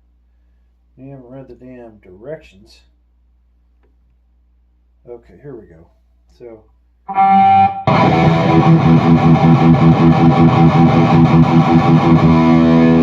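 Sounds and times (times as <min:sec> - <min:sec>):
distorted electric guitar riff: 0:07.1 - 0:13.0.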